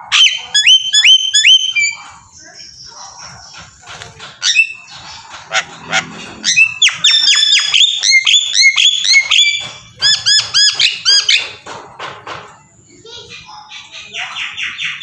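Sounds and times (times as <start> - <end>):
high-pitched animal calls: 4.4 - 10.8.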